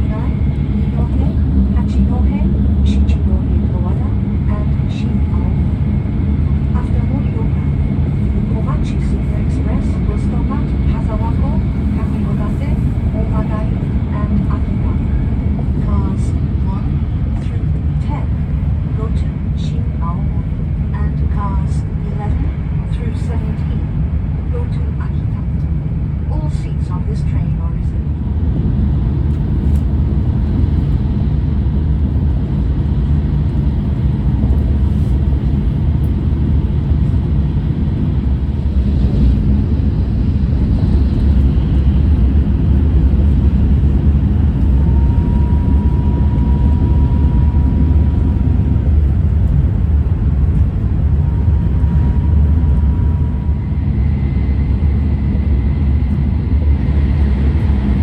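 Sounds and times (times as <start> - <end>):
train wheels rumbling on track: 28.0 - 55.4
faint high whine: 44.5 - 50.4.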